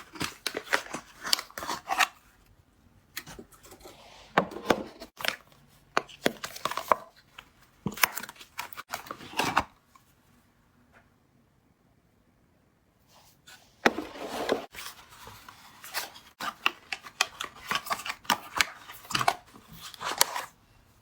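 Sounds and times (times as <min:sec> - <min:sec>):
packaging crinkling and rustling: 0:13.9 - 0:20.6.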